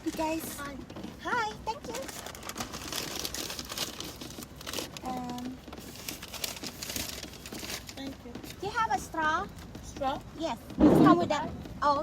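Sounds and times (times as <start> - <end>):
paper bag crinkling: 1.8 - 8.1.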